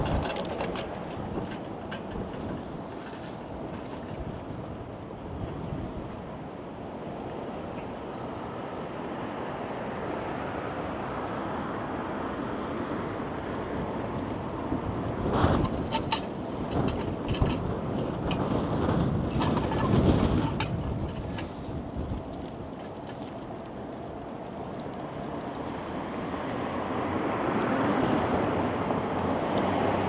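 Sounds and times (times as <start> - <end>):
gusty wind: 0.0 - 9.7, 11.4 - 30.0
road traffic passing: 12.8 - 30.0
crackling noise: 20.8 - 27.0.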